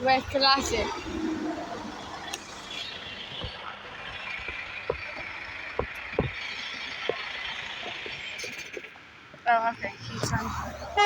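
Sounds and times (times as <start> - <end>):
trucks passing: 0.0 - 11.0
dull footsteps: 2.4 - 8.9.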